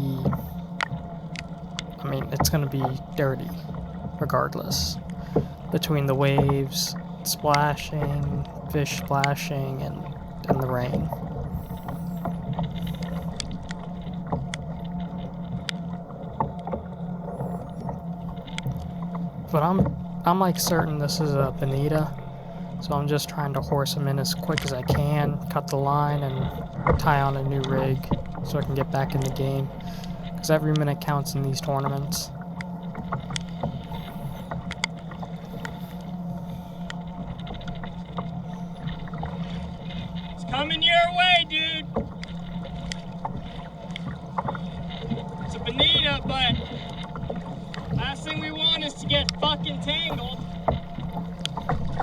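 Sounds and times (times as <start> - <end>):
sharp drips and ticks: 0.0 - 52.0
steady low hum: 0.0 - 52.0
water splashing around kayak: 0.0 - 52.0
wind: 0.0 - 52.0
sharp ticks: 41.8 - 52.0.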